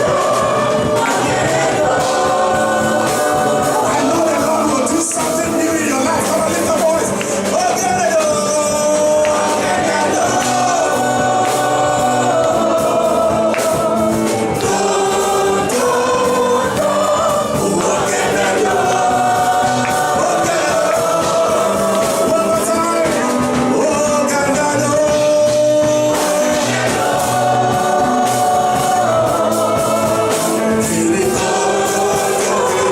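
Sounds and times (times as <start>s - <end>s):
church band with drums: 0.0s - 32.9s
gospel choir singing: 0.0s - 32.9s.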